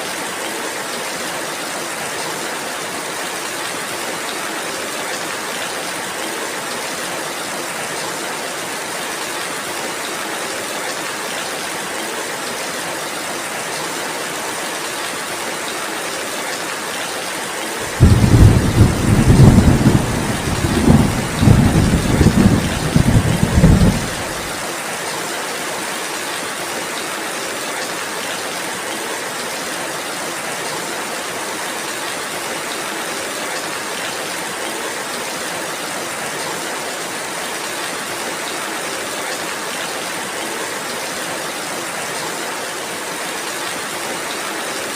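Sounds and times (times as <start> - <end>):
steady rainfall: 0.0 - 44.9
thunder rumbling: 17.8 - 24.6.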